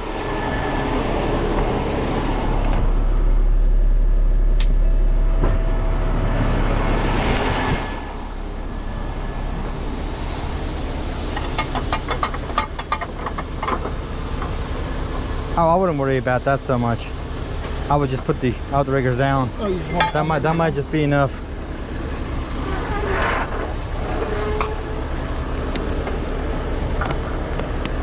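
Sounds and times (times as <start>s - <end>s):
diesel engine under load: 0.0s - 28.0s.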